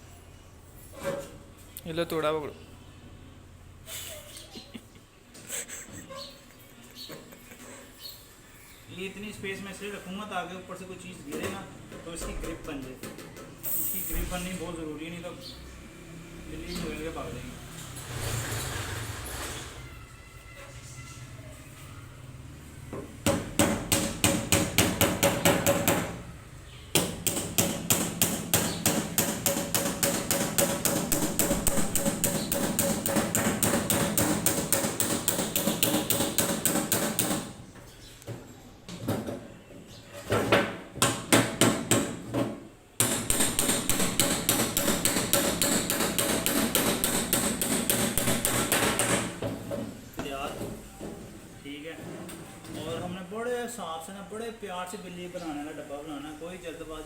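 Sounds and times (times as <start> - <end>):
hammering on a tin can: 23.2 - 26.2, 26.9 - 37.6, 43.0 - 49.4.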